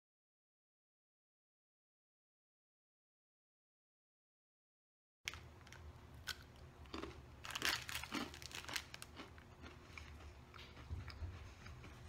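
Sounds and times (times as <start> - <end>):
biscuit crunching: 5.3 - 12.0
person chewing: 5.3 - 12.0.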